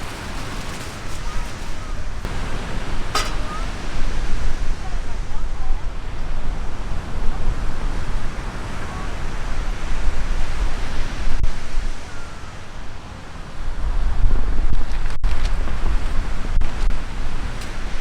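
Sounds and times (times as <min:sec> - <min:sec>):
surf washing: 0:00.0 - 0:14.3
wind buffeting microphone: 0:00.0 - 0:18.0.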